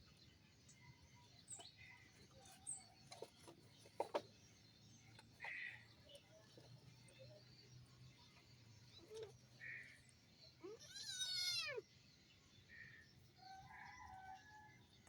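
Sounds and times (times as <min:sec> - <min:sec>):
cat meowing: 0:10.6 - 0:11.8.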